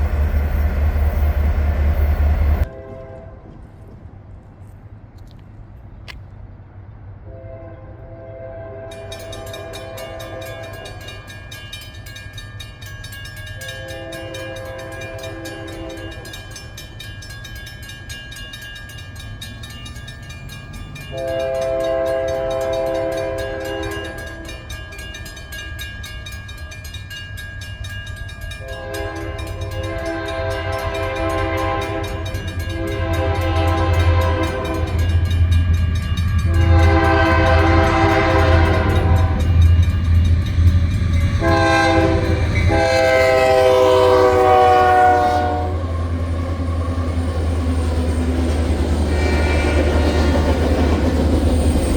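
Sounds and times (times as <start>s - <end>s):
train rumble: 0.0s - 51.9s
locomotive air horn blasts: 2.6s - 3.5s, 7.2s - 10.8s, 13.6s - 16.3s, 21.1s - 24.6s, 28.6s - 35.2s, 36.4s - 39.6s, 41.4s - 45.9s, 49.1s - 50.5s.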